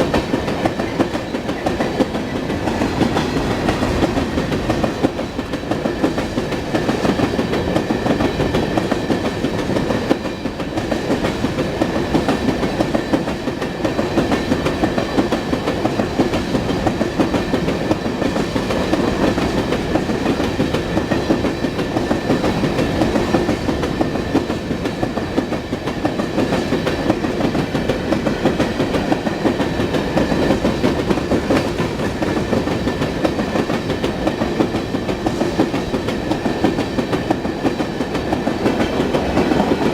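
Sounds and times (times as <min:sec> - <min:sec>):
train wheels clicking over rail joints: 0:00.0 - 0:39.9.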